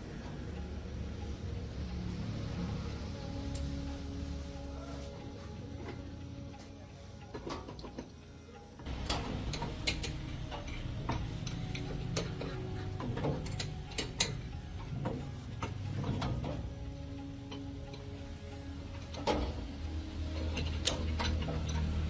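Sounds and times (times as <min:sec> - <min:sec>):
hand tools clicking on metal: 0:07.3 - 0:22.0.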